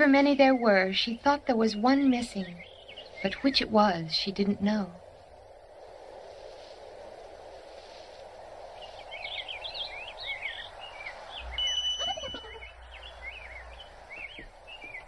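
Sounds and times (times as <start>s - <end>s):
birds chirping: 0.0s - 4.8s, 8.7s - 15.0s
steady background hiss: 0.0s - 15.0s
high whistle-like bird note: 11.6s - 12.7s.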